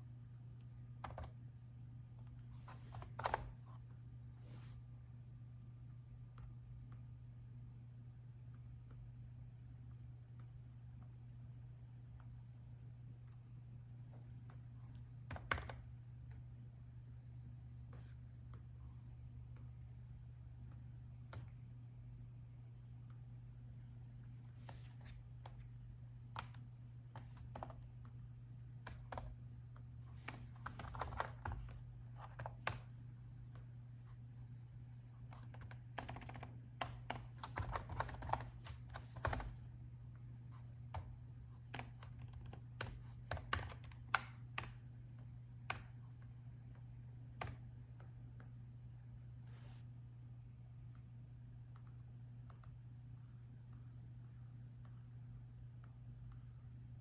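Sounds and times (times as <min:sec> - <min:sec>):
steady low hum: 0:00.0 - 0:57.0
laptop keyboard typing: 0:01.0 - 0:01.4, 0:02.6 - 0:03.8, 0:15.2 - 0:16.0, 0:26.3 - 0:28.0, 0:28.8 - 0:29.4, 0:30.2 - 0:32.9, 0:35.2 - 0:39.7, 0:40.6 - 0:44.9, 0:45.6 - 0:46.0, 0:46.7 - 0:47.7.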